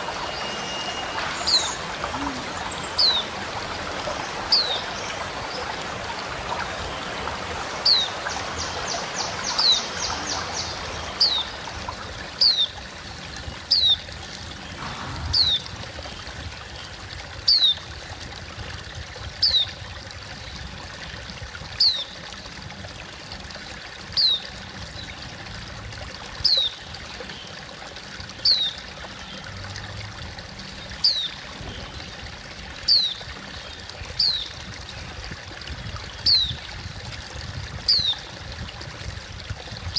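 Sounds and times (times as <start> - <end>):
bird calling high and thin: 0.0 - 3.3
running water rushing: 0.0 - 39.9.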